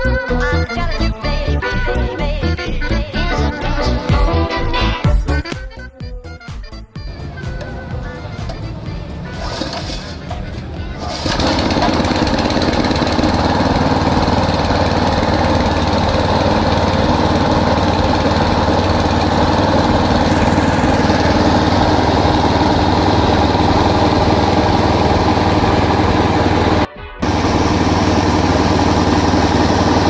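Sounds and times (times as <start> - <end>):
small petrol engine running: 7.2 - 30.0.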